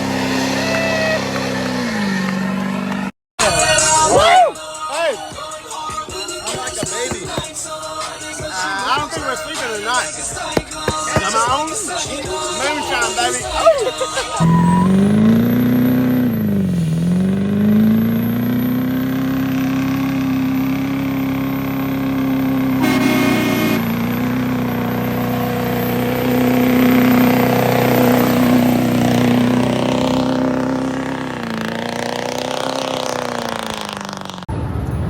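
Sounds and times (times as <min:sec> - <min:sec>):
truck engine revving: 0:00.0 - 0:03.1, 0:05.8 - 0:35.0
truck horn blast: 0:14.4 - 0:17.2, 0:22.5 - 0:25.0.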